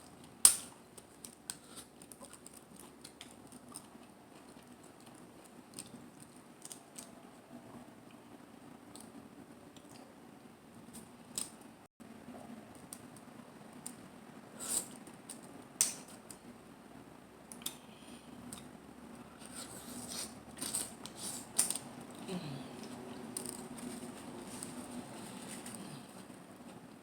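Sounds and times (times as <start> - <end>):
shells clicking and cracking: 0.2 - 3.6, 15.2 - 16.4, 22.8 - 24.7.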